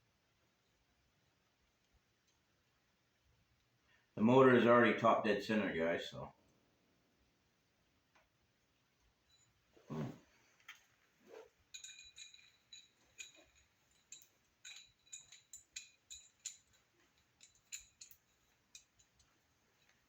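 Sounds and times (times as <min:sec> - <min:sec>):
metallic clinks and rattles: 0:09.3 - 0:09.6, 0:10.5 - 0:20.0.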